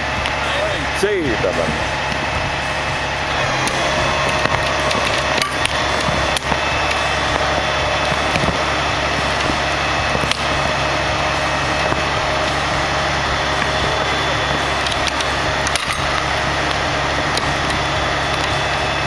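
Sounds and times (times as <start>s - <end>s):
heavy machinery engine running: 0.0s - 19.0s
wood splitting cracks: 3.1s - 19.0s.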